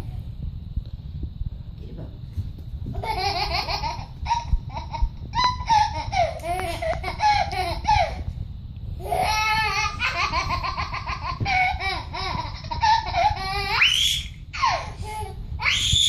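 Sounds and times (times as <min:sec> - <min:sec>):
baby laughing: 0:03.0 - 0:08.2, 0:09.0 - 0:13.9.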